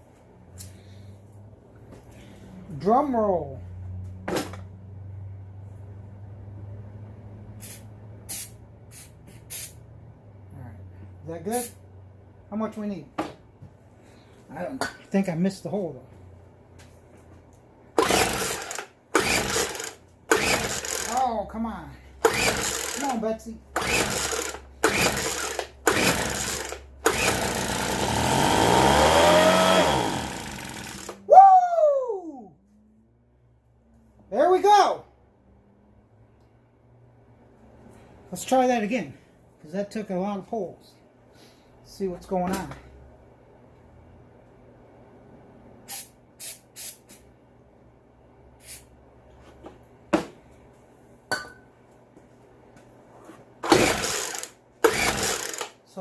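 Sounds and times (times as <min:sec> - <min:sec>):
aerosol spray bursts: 0:07.6 - 0:09.8, 0:45.9 - 0:47.2
recoil starter pulls: 0:18.0 - 0:21.3, 0:22.2 - 0:23.2, 0:23.8 - 0:31.2, 0:53.6 - 0:55.8
leaf blower engine running: 0:23.8 - 0:31.2.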